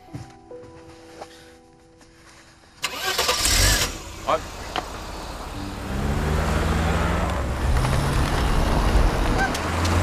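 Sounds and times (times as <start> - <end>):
car engine revving: 2.8 - 10.0.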